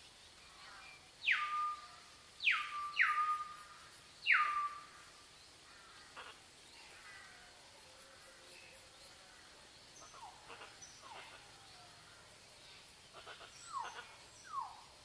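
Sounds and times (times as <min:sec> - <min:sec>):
faint bird chirps: 0:00.0 - 0:15.0
bird calling: 0:01.2 - 0:05.0.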